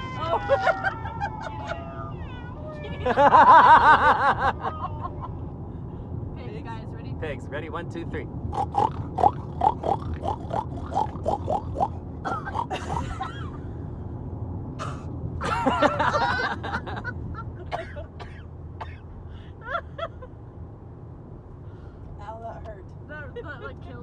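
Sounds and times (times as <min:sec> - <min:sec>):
car road noise: 0:00.0 - 0:24.0
person squealing like a pig: 0:08.6 - 0:13.0
people oinking like pigs: 0:08.6 - 0:13.1.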